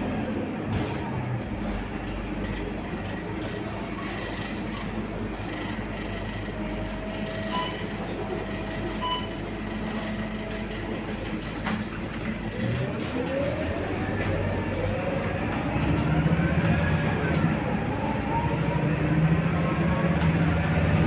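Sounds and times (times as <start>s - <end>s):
bus diesel engine running: 0.0s - 21.0s
road and cabin noise: 0.0s - 21.0s.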